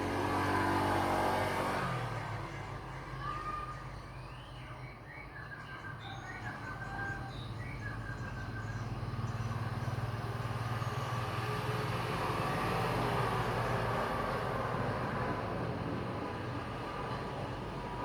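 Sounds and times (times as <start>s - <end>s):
vehicle engine and road noise: 0.0s - 3.3s, 7.1s - 18.0s.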